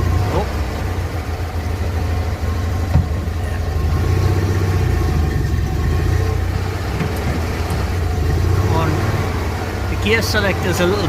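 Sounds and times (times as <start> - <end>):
small vehicle engine droning: 0.0 - 11.0.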